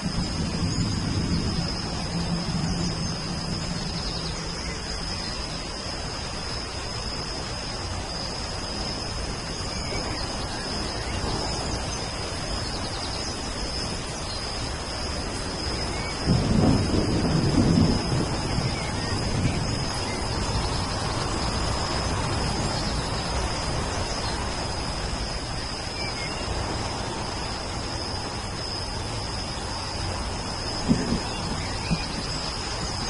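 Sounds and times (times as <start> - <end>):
thunder rumbling: 0.0 - 5.3, 15.4 - 25.6, 30.8 - 33.0
steady rain: 0.0 - 33.0.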